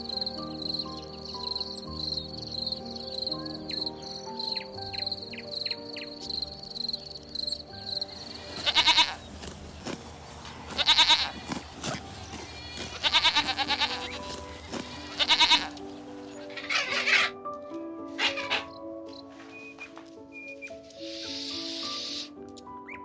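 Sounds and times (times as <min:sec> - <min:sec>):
soft background music: 0:00.0 - 0:23.0
farm animal bleating: 0:08.1 - 0:17.4, 0:18.1 - 0:18.8.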